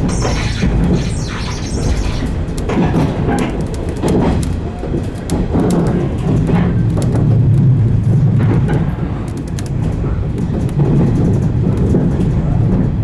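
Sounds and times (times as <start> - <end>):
track clicks: 0.0 - 2.7.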